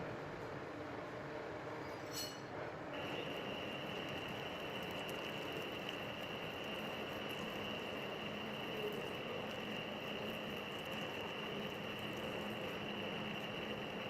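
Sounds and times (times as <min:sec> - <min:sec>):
high even whine: 0:03.0 - 0:14.0
metal lathe running: 0:03.0 - 0:14.0.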